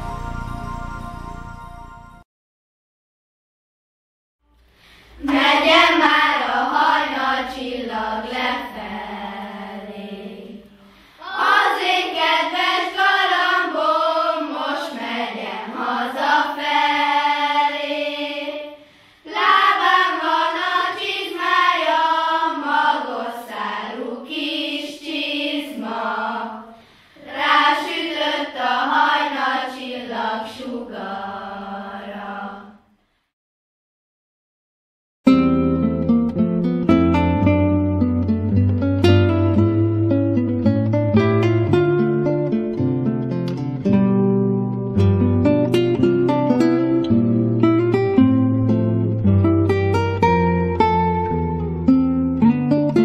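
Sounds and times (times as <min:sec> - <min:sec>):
children's choir singing: 0:05.2 - 0:32.9.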